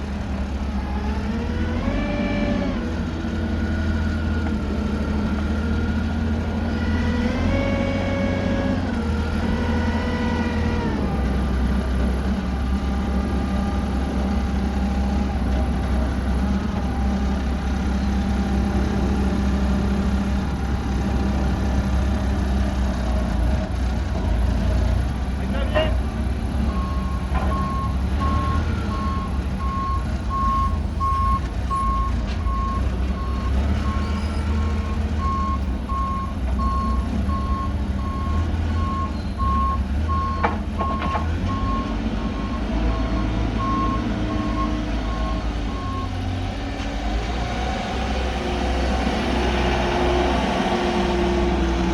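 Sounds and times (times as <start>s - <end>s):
truck engine rumbling: 0.0s - 51.9s
truck reverse alarm beeping: 26.6s - 46.3s.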